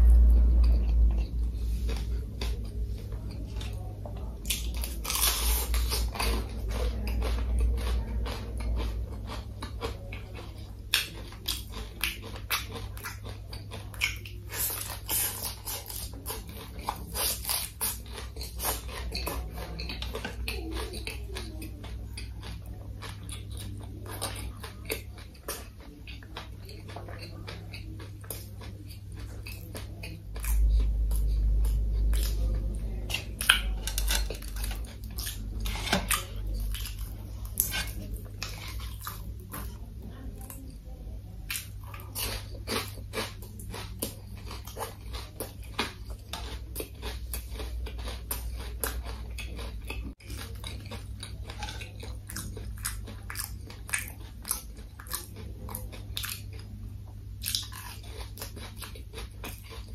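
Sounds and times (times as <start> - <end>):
deep low rumble: 0.0 - 4.5
chewing crispy fried food: 0.0 - 59.9
steady low hum: 0.0 - 59.9.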